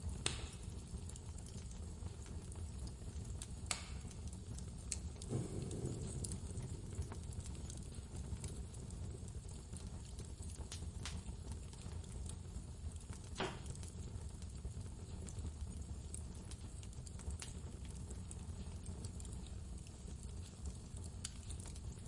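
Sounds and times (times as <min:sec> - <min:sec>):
sharp pops of fire: 0:00.0 - 0:22.0
wood fire crackling: 0:00.0 - 0:22.0
storm wind rumble: 0:05.2 - 0:08.7.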